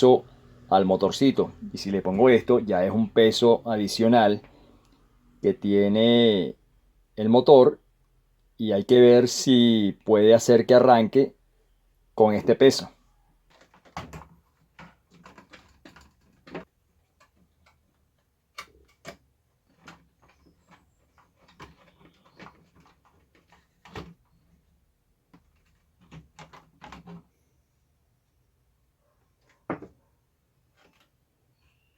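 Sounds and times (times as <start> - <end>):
light clicks and knocks of parts: 13.5 - 27.3.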